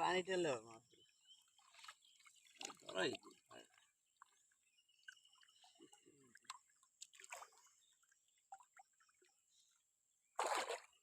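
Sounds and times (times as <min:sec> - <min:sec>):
faint water drips: 0:01.4 - 0:09.4
water splash: 0:10.4 - 0:11.0.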